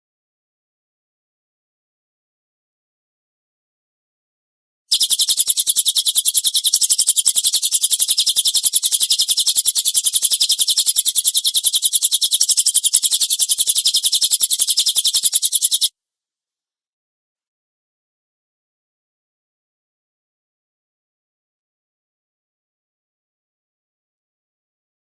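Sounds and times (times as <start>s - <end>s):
bird rapid harsh high notes: 4.9s - 15.9s.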